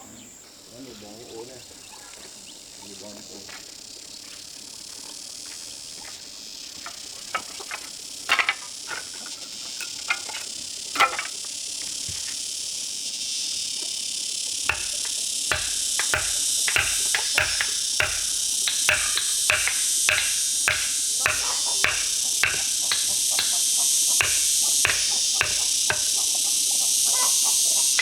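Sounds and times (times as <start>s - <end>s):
high insect drone: 0.0s - 28.0s
rhythmic knocks: 14.7s - 26.6s.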